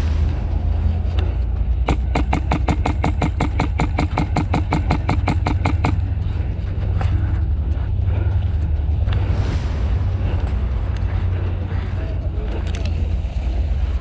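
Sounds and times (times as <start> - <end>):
steady low rumble: 0.0 - 14.0
airsoft gun rapid burst: 1.8 - 6.0.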